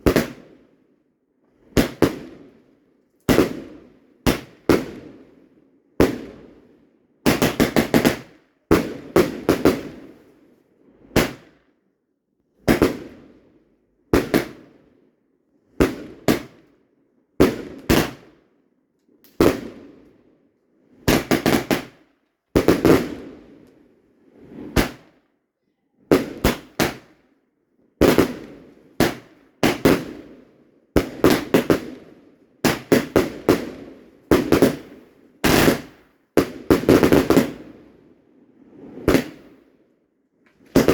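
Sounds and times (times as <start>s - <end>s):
fireworks banging: 39.0s - 39.4s.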